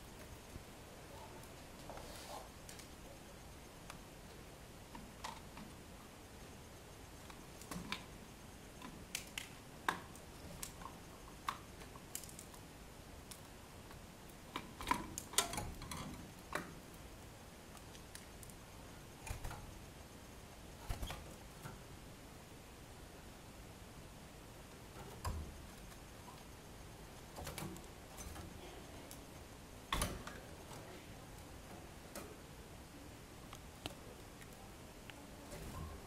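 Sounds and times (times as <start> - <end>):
birds tapping in cage: 19.2 - 19.8, 27.2 - 29.3.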